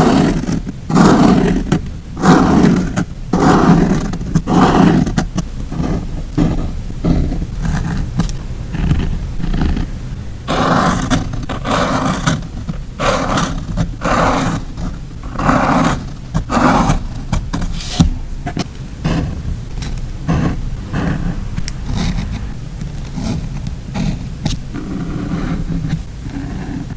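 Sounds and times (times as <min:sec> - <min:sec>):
paper rustling and scraping: 0:10.5 - 0:26.9.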